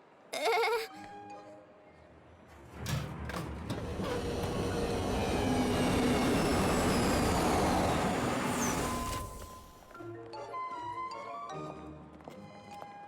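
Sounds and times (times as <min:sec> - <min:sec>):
rumbling rushing vehicle noise: 0:02.6 - 0:09.8.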